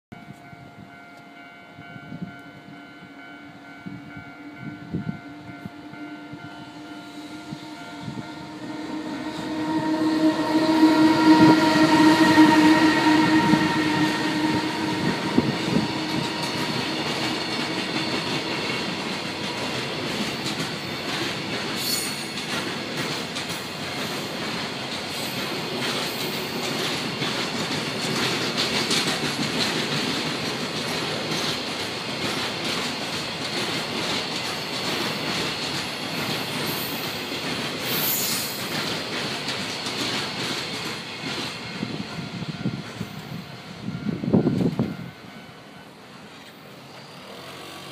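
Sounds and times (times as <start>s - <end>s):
held multi-pitched tone: 0.2s - 19.1s.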